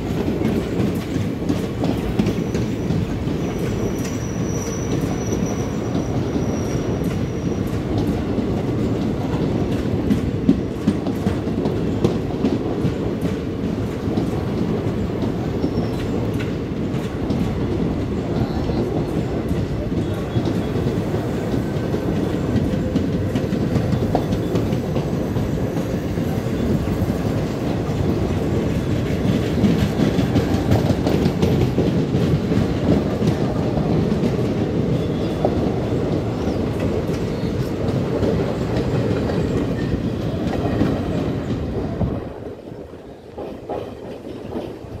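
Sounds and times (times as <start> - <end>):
train wheels clattering: 0.0 - 45.0.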